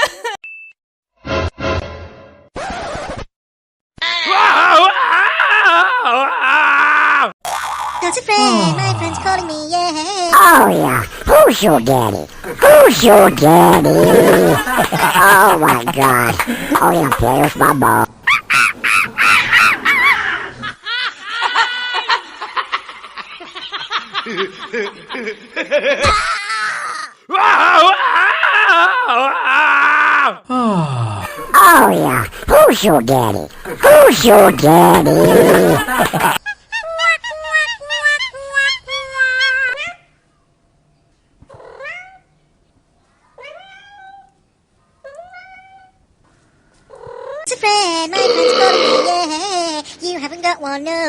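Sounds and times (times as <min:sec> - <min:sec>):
short high-pitched vocal notes: 0:10.4 - 0:18.1, 0:31.4 - 0:36.3
comic cackling laugh voice: 0:10.6 - 0:26.8, 0:31.3 - 0:37.3.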